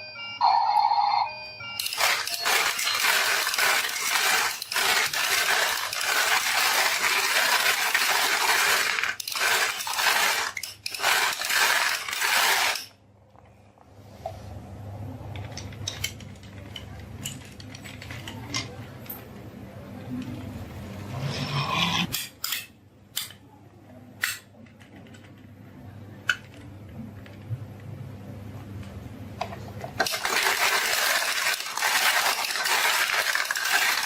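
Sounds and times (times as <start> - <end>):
marbles clattering down marble run: 1.8 - 13.0, 30.0 - 34.0.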